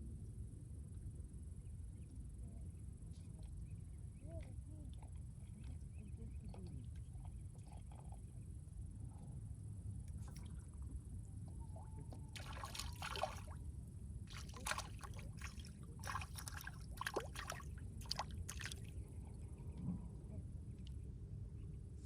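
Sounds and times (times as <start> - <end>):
water splashing and sloshing: 11.7 - 13.6, 14.3 - 19.0.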